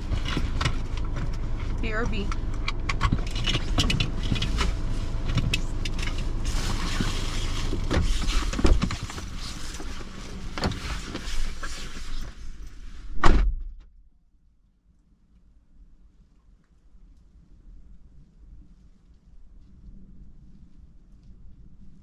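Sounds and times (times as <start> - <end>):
rustling and clicks: 0.0 - 12.8
low car hum: 0.0 - 14.1
heavy thump: 13.2 - 13.9.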